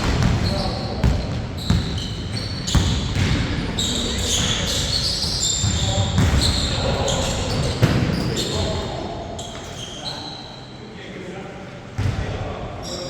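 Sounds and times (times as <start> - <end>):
players' voices: 0.0 - 2.0, 2.7 - 13.0
basketball bouncing on court: 0.0 - 6.8, 12.0 - 12.3.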